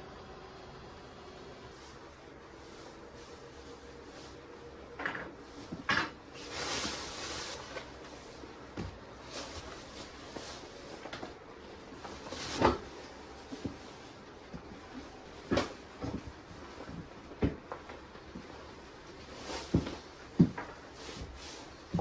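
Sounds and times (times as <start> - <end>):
objects knocking and clattering: 5.0 - 6.2.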